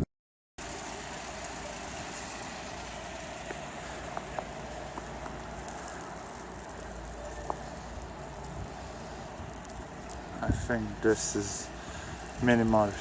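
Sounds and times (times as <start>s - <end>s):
blizzard rushing: 0.6s - 13.0s
wind rumbling on microphone: 0.6s - 13.0s
faint ticks: 3.4s - 10.3s.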